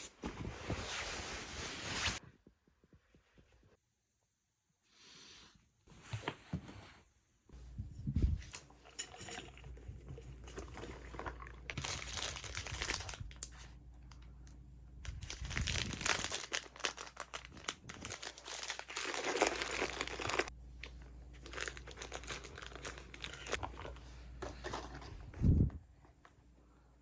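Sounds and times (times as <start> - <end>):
packaging crinkling: 11.1 - 14.3, 15.1 - 24.0
packaging tearing: 15.3 - 20.5.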